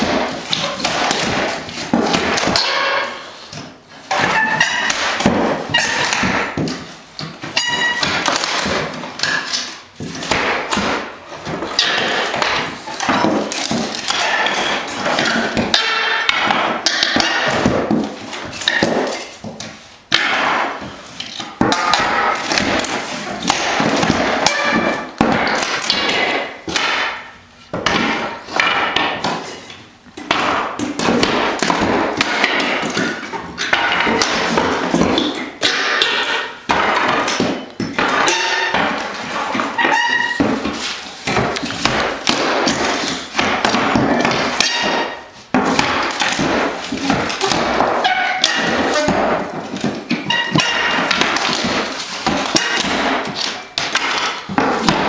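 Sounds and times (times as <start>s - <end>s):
hammering and prying floorboards: 0.0s - 55.0s.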